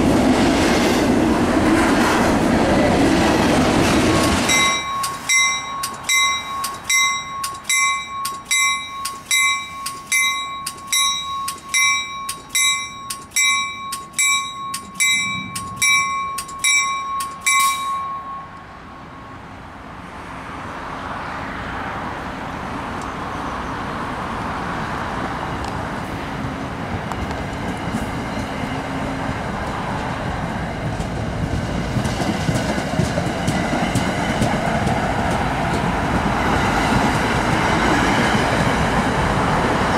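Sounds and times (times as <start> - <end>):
train coaches rumbling on rails: 0.0 - 39.9
warning bell ringing: 4.2 - 19.4.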